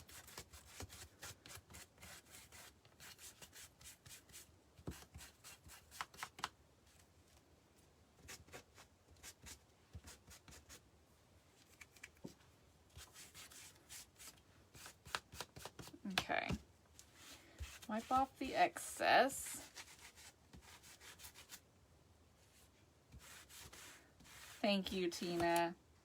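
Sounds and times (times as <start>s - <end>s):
paintbrush scratching on wood: 17.2s - 18.6s, 19.6s - 21.6s, 23.2s - 25.6s.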